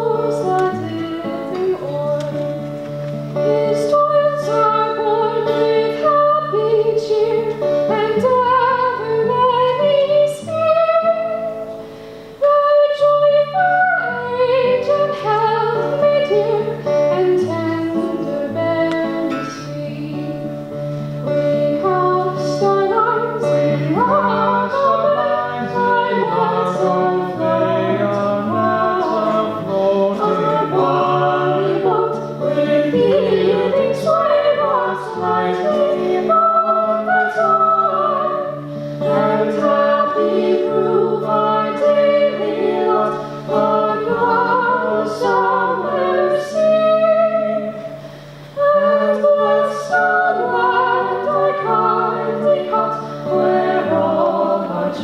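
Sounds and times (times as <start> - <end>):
voices singing in harmony: 0.0 - 55.0.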